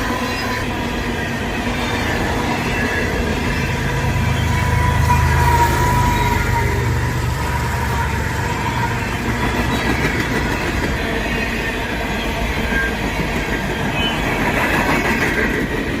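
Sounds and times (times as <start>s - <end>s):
train wheels clattering over joints: 7.7s - 16.0s.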